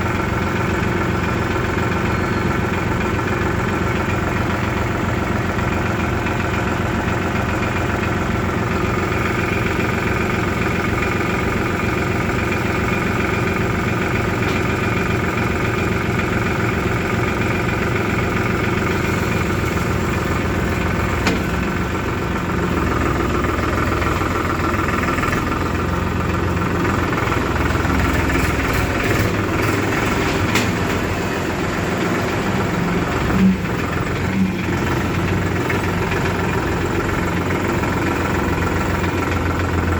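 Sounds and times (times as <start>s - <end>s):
diesel engines running: 0.0s - 39.9s.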